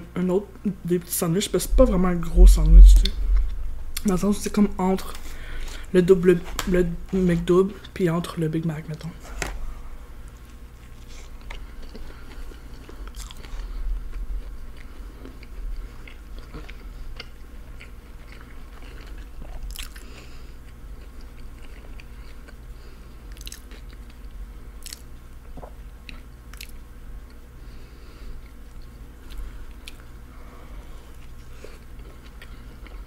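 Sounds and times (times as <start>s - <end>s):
low steady hum: 0.0s - 33.0s
wet chewing sounds: 10.2s - 27.4s, 28.4s - 30.2s, 31.0s - 33.0s.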